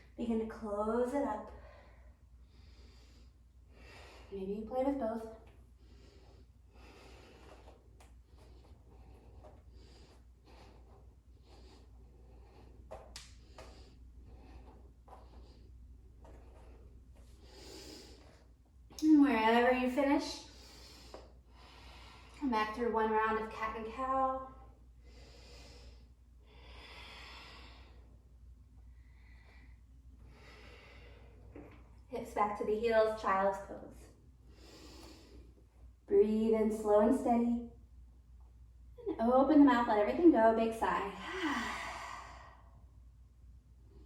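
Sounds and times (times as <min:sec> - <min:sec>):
low steady hum: 0:00.0 - 0:44.0
person breathing softly: 0:01.5 - 0:04.4, 0:05.5 - 0:18.6, 0:20.4 - 0:22.4, 0:24.9 - 0:28.2, 0:28.8 - 0:31.7, 0:34.4 - 0:35.9, 0:41.2 - 0:43.0.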